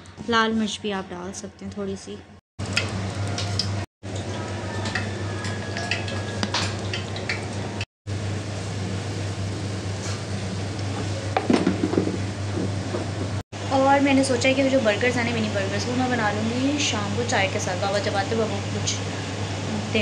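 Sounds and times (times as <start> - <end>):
chicken sizzling in a pan: 2.8 - 11.2
steady low hum: 6.1 - 20.0.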